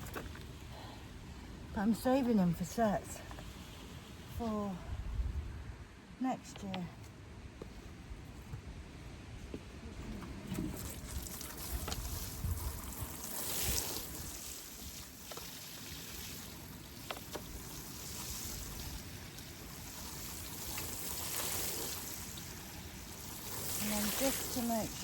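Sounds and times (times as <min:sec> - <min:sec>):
rain falling: 0:10.8 - 0:25.0.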